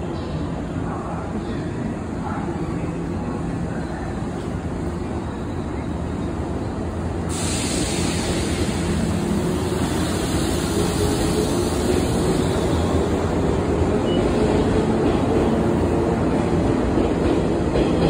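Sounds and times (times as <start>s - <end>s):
hiss: 7.3s - 13.0s.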